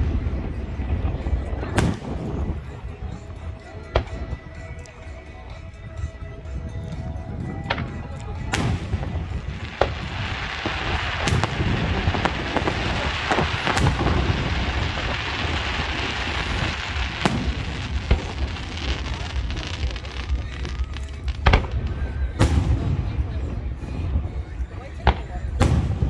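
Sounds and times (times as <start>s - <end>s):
fireworks bangs: 0.0s - 3.4s, 7.6s - 26.0s
fireworks crackling: 0.0s - 5.0s, 5.6s - 26.0s.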